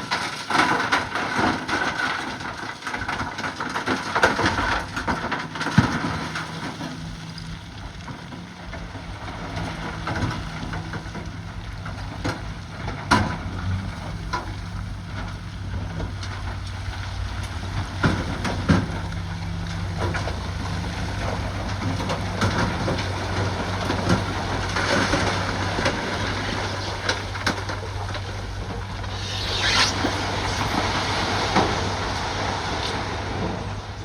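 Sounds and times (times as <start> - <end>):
bulldozer diesel engine running: 2.4 - 29.4.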